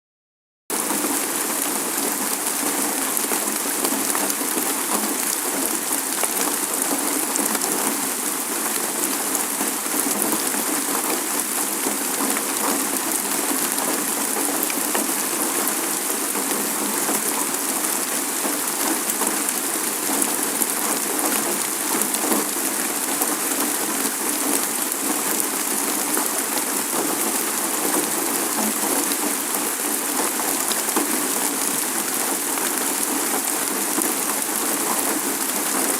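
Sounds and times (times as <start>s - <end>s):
steady rainfall: 0.7s - 35.9s.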